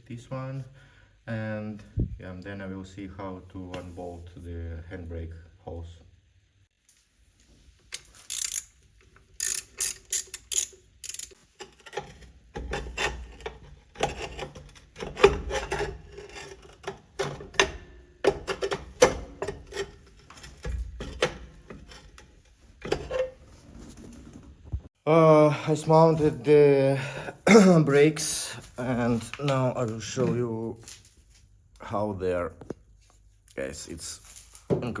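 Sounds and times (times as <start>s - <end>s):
ratchet clicks: 7.9s - 8.8s, 9.4s - 11.4s.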